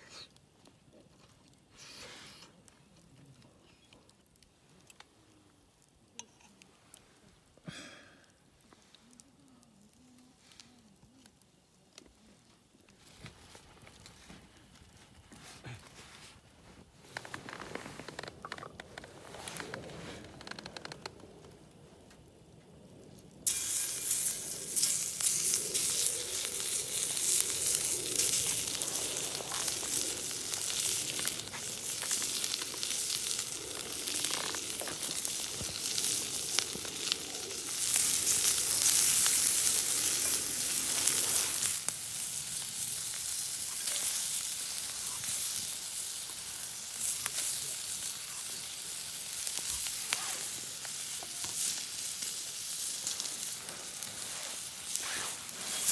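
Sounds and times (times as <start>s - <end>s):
food sizzling in a pan: 23.4s - 55.9s.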